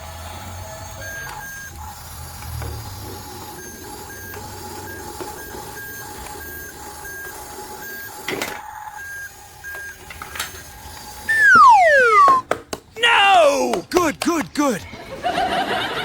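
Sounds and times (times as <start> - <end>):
short high electronic beeps: 11.3 - 12.4
steady lower electronic tone: 11.3 - 12.4.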